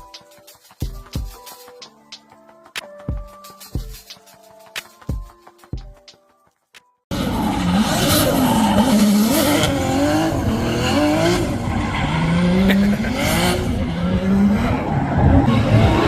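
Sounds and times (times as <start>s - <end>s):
car engine revving: 7.1s - 16.0s.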